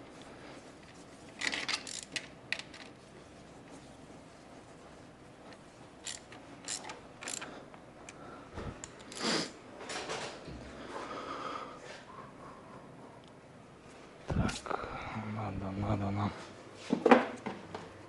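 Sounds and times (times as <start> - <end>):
tools clicking and rattling: 1.4 - 3.0, 6.0 - 8.2.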